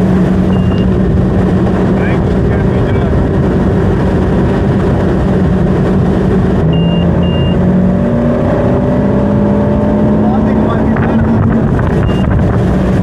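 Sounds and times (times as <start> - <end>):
boat engine running: 0.0 - 8.0, 9.3 - 13.0
short high beeps: 0.5 - 0.9, 6.7 - 7.6, 12.0 - 12.4.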